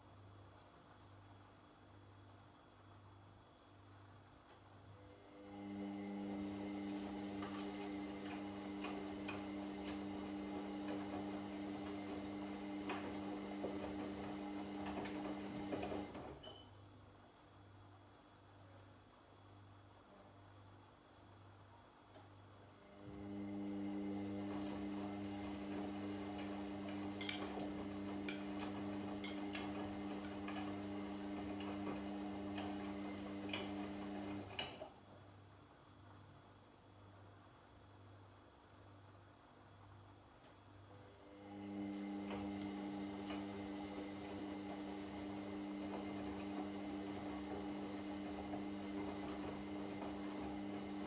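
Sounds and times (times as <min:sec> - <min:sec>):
washing machine motor hum: 0:05.0 - 0:16.6, 0:22.6 - 0:35.0, 0:40.9 - 0:51.0.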